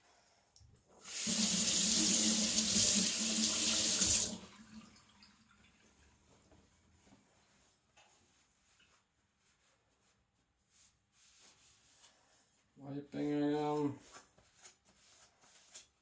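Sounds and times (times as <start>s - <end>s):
tap running into sink: 1.1s - 4.4s.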